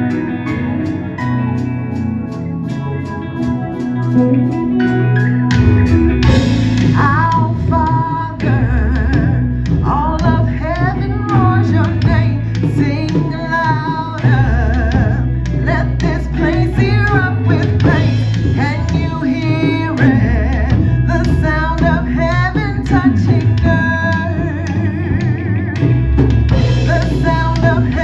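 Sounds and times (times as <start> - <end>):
guitar: 0.0 - 28.0
low bass: 0.0 - 28.0
person singing with vibrato: 6.1 - 28.0.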